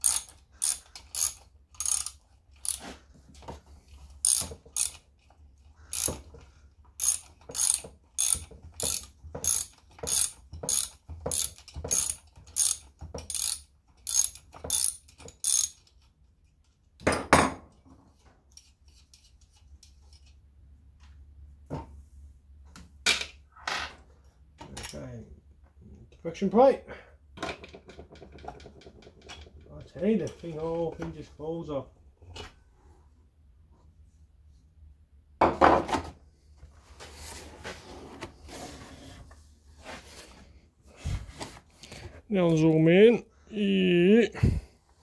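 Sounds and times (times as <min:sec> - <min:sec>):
ratchet clicking: 0:00.0 - 0:02.8, 0:04.2 - 0:05.0, 0:05.9 - 0:06.2, 0:07.0 - 0:16.0.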